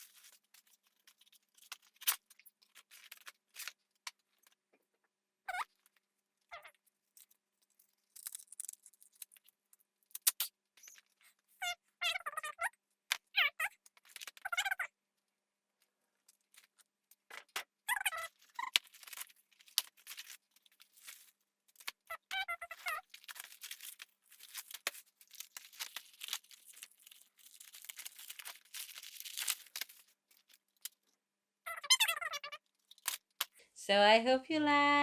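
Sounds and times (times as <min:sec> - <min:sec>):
packaging rustling and tearing: 0:18.3 - 0:30.9.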